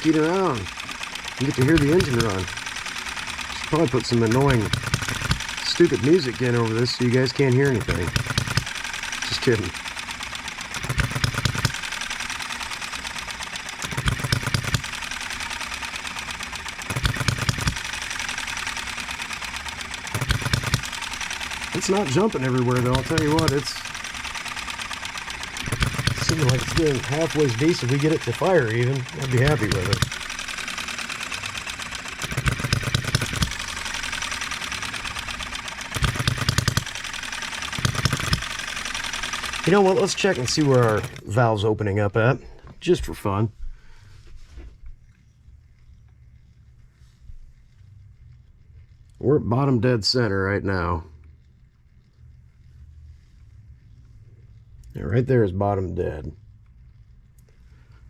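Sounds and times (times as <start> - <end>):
model engine clicking and firing: 0.0 - 43.4.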